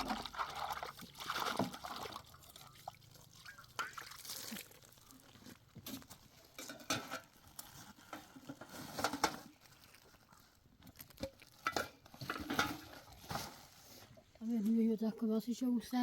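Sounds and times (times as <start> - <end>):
dishes and utensils clinking: 6.5 - 7.4, 11.6 - 13.0.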